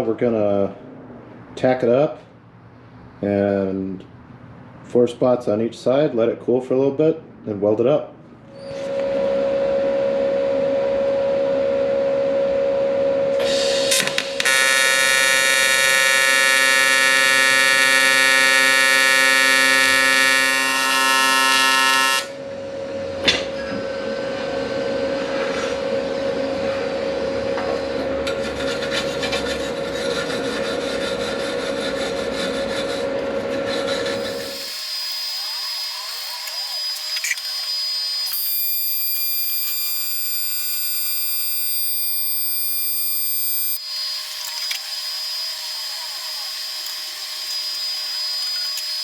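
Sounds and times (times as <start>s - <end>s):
steady hum: 8.4s - 28.5s
welding arc buzzing: 13.4s - 22.4s, 34.0s - 49.0s.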